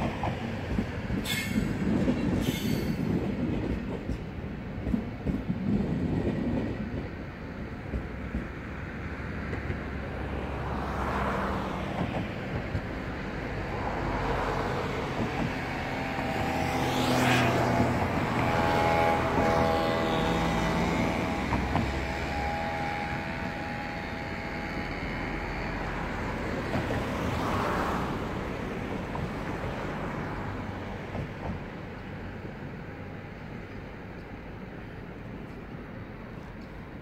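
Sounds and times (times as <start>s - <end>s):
train wheels rumbling: 0.0s - 37.0s
electric train motor whine: 15.6s - 26.8s.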